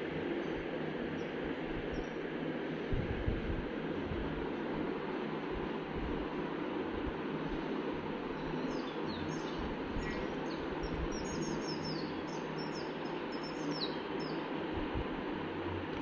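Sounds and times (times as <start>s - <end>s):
low background hum: 0.0s - 16.0s
small birds chirping: 7.4s - 14.6s.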